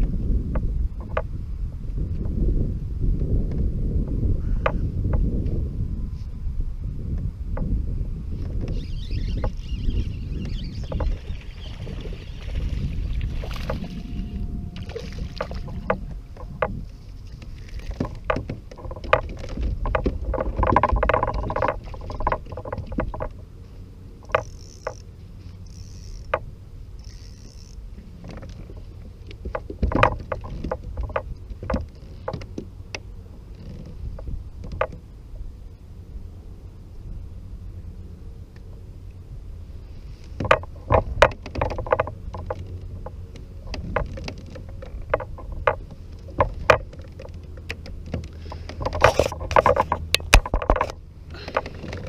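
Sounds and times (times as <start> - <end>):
steady low rumble: 0.0 - 52.0
gear knocking on kayak hull: 10.4 - 23.4, 24.2 - 25.1, 27.1 - 35.0, 40.4 - 52.0.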